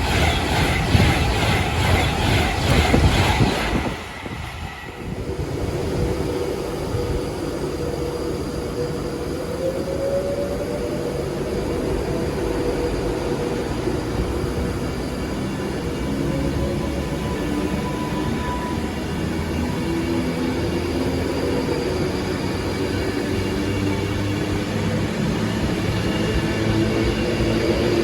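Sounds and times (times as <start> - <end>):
train wheels clattering: 0.0 - 5.1
train rumble: 0.0 - 28.0.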